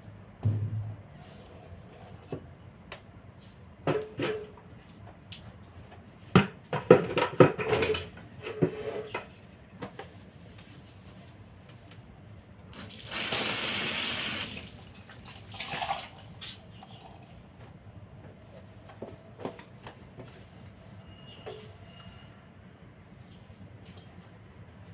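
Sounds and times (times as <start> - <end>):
objects knocking and clattering: 6.4 - 10.0.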